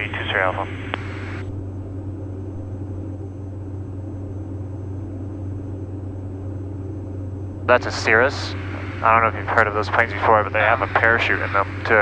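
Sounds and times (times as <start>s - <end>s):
twin aircraft engines droning: 0.0s - 12.0s.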